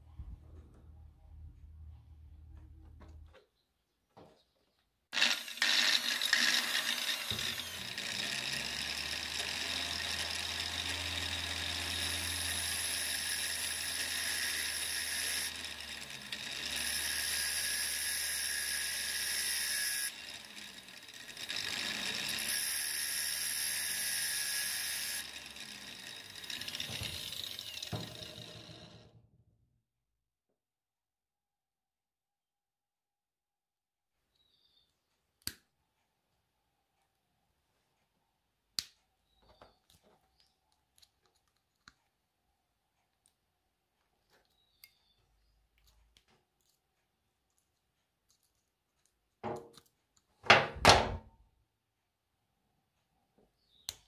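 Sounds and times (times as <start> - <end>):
angle grinder running: 5.2 - 29.2.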